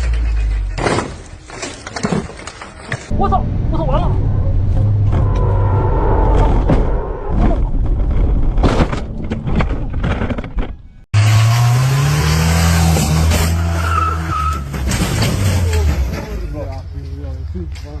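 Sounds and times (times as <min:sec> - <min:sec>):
car road noise: 0:03.0 - 0:18.0.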